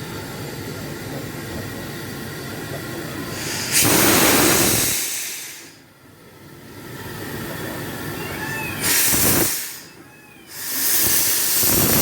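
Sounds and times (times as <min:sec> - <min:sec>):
locomotive rumbling: 0:00.0 - 0:05.0, 0:06.0 - 0:12.0
loud hiss of escaping pressure: 0:03.3 - 0:05.8, 0:08.8 - 0:09.9, 0:10.5 - 0:12.0.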